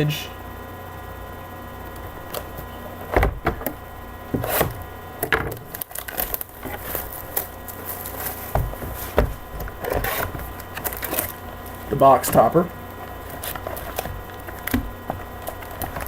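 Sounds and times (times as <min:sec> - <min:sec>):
faint electrical hum: 0:00.0 - 0:16.0
plastic wrap and cardboard crinkling: 0:05.4 - 0:16.0.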